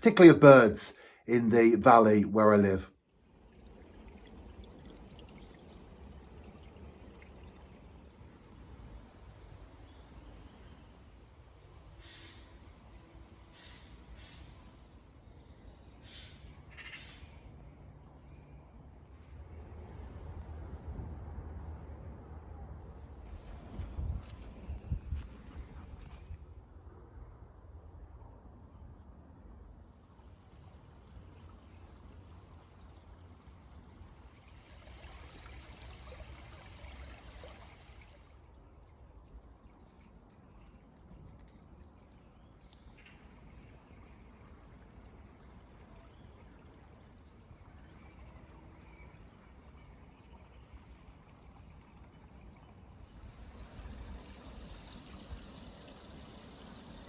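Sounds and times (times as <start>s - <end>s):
steady hiss: 53.0s - 57.0s.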